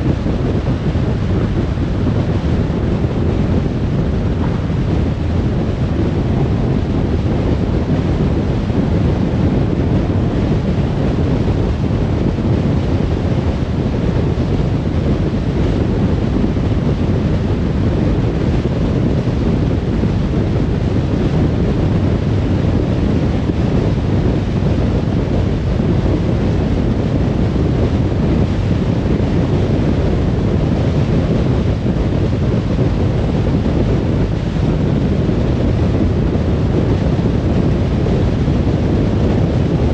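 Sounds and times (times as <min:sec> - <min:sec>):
tyre and wind noise: 0:00.0 - 0:39.9.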